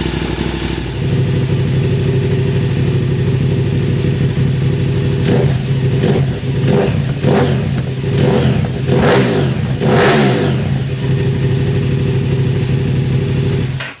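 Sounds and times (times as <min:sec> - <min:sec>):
motorcycle engine idling with blips: 0:00.0 - 0:14.0.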